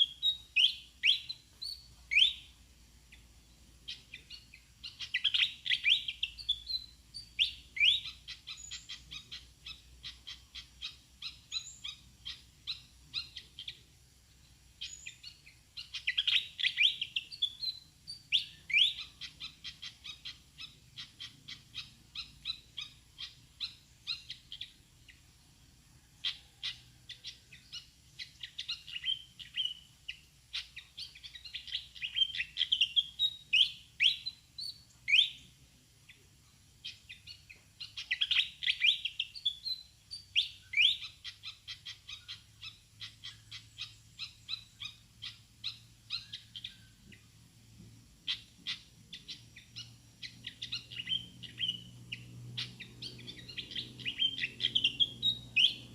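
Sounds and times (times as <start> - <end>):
bird chipping calls: 0.0 - 13.9, 14.8 - 25.2, 25.9 - 35.5, 36.1 - 47.4, 48.2 - 55.9.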